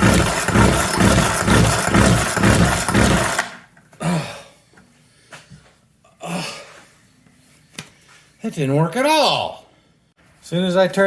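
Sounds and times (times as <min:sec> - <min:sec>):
chainsaw engine starting and dying: 0:00.0 - 0:03.7.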